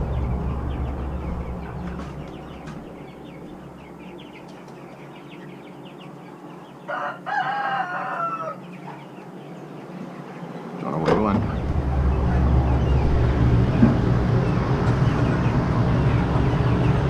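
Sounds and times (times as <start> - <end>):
low rumble: 0.0 - 4.9, 11.0 - 17.0
birds chirping: 0.0 - 17.0
rooster crowing: 6.8 - 8.8.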